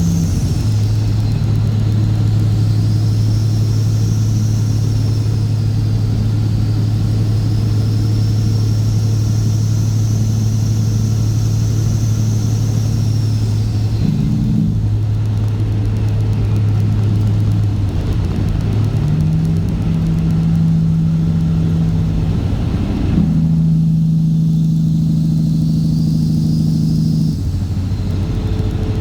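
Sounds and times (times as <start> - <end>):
diesel truck engine running: 0.0 - 29.0
faint high whistle: 23.7 - 29.0.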